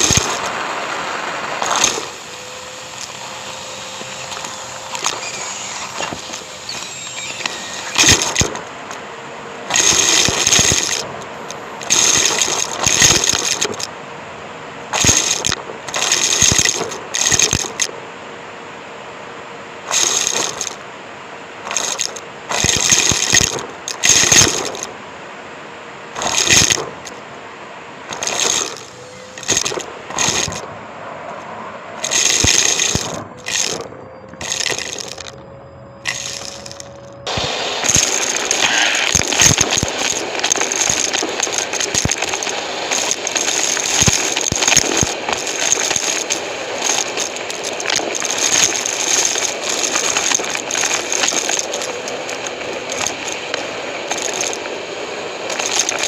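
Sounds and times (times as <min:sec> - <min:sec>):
vacuum cleaner sucking up debris: 0:00.0 - 0:14.0, 0:14.9 - 0:17.9, 0:19.9 - 0:20.8, 0:21.6 - 0:25.0, 0:26.1 - 0:27.2, 0:28.1 - 0:30.7, 0:32.0 - 0:35.4, 0:36.0 - 0:56.0.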